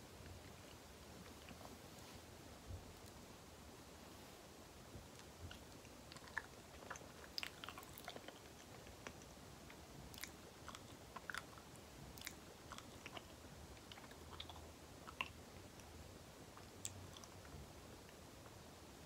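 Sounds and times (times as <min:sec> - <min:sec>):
wet chewing mouth clicks: 0:05.2 - 0:09.3, 0:10.1 - 0:11.6, 0:12.2 - 0:15.9.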